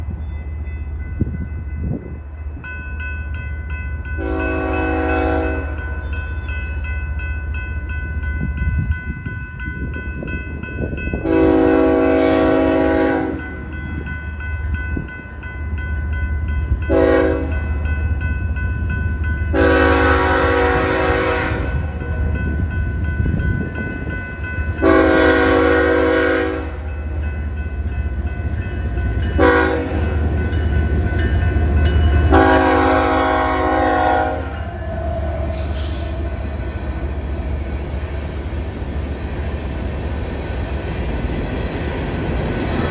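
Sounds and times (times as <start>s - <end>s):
train air horn blasts: 4.2s - 5.8s, 11.2s - 13.4s, 16.9s - 17.6s, 19.5s - 21.9s, 24.8s - 26.8s, 29.4s - 30.1s, 32.3s - 36.5s
locomotive rumble: 16.5s - 42.9s.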